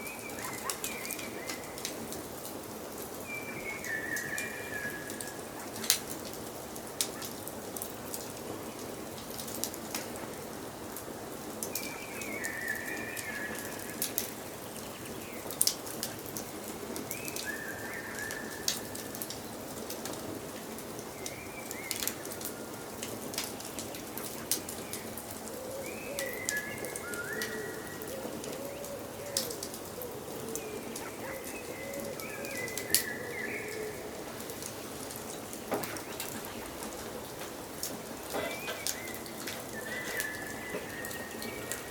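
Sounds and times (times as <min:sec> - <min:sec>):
wood fire crackling: 0:00.0 - 0:03.3, 0:18.5 - 0:41.9
low wavering bird calls: 0:24.8 - 0:34.2, 0:38.0 - 0:41.9.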